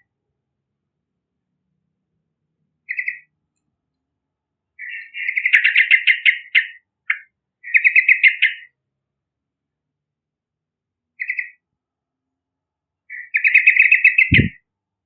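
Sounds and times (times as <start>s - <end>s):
bulbul singing: 2.9s - 3.3s, 4.8s - 8.7s, 11.2s - 11.6s, 13.1s - 14.6s.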